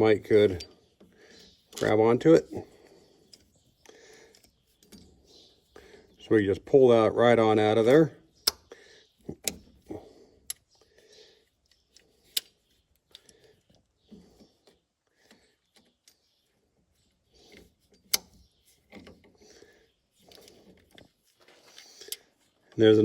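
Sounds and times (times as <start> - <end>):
handling rustle: 20.0 - 23.0.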